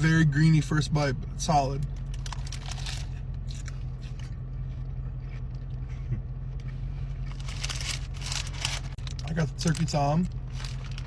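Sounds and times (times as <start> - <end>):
car running drone: 0.0 - 11.0
person chewing with crunches: 2.0 - 9.2.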